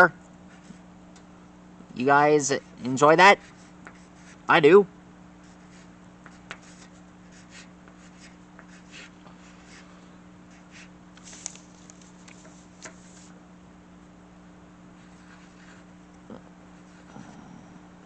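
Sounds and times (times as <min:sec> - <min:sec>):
low electrical hum: 0:00.0 - 0:18.0
pencil scratching on paper: 0:03.4 - 0:04.5, 0:05.4 - 0:09.8, 0:15.0 - 0:15.9, 0:16.8 - 0:17.1.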